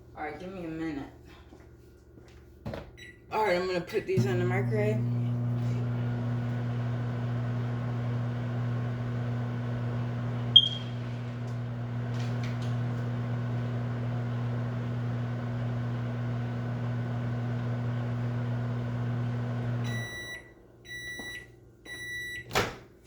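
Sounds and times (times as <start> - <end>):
microwave high-pitched beeps: 3.0 - 3.3, 4.2 - 12.1, 12.8 - 22.5
microwave oven humming: 3.0 - 22.3.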